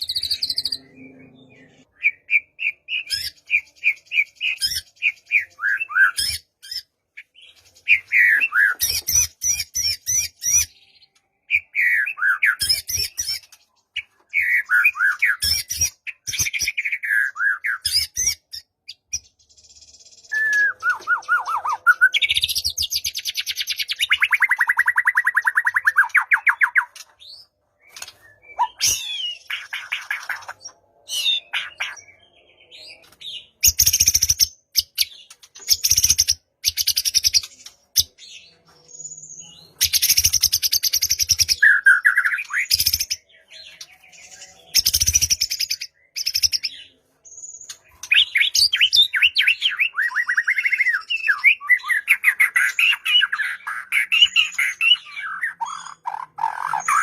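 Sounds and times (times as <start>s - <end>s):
bird singing whistled phrases: 0.0s - 6.8s, 20.2s - 30.5s, 47.5s - 57.0s.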